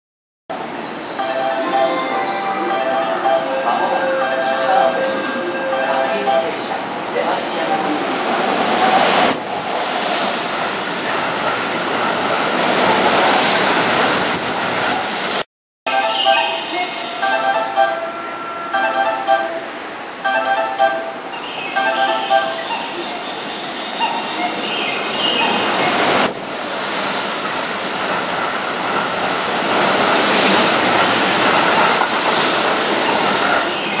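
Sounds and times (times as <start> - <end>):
train wheels rushing on rail: 2.6 - 15.4, 21.8 - 34.0.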